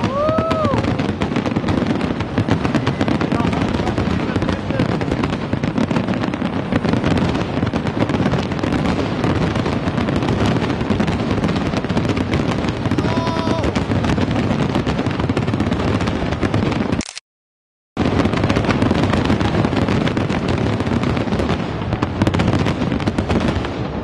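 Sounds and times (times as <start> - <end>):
firework whistling: 0.0 - 17.0
fireworks bangs and crackles: 0.0 - 17.0, 18.0 - 24.0.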